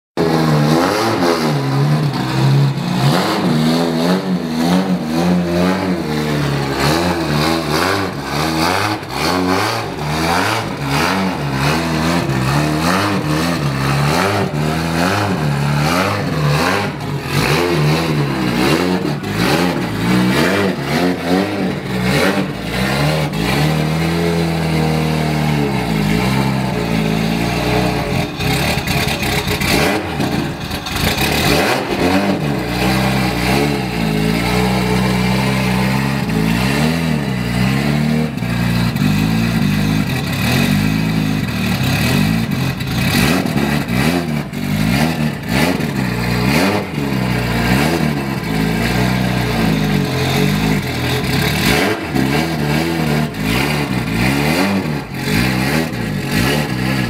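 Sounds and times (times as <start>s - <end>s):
turbocharged car engine revving: 0.2s - 57.0s
car engine idling: 1.6s - 57.0s.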